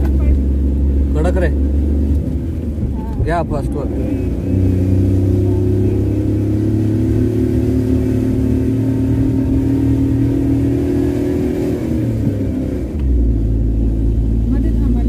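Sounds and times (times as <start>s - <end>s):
car engine pulling hard: 0.0s - 15.0s.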